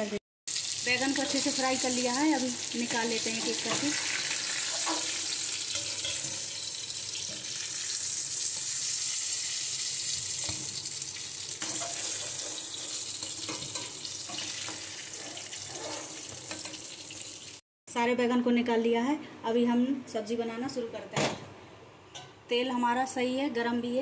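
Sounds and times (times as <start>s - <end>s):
eggplant sizzling in hot oil: 0.0s - 17.6s
steel spatula tapping and scraping: 5.7s - 7.5s, 11.6s - 14.8s.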